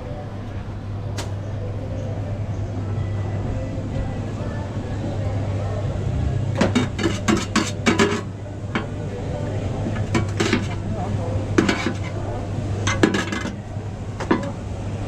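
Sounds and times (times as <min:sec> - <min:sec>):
steady low hum: 0:00.0 - 0:15.0
metal utensils and dishes clattering: 0:06.6 - 0:08.9, 0:09.9 - 0:10.9, 0:11.6 - 0:12.2, 0:12.8 - 0:13.6, 0:14.2 - 0:14.6.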